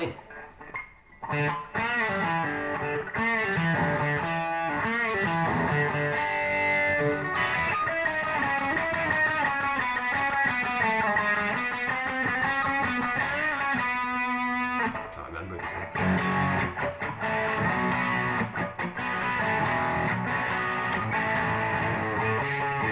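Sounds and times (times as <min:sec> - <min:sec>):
electric guitar rock riffs: 0:00.0 - 0:22.9.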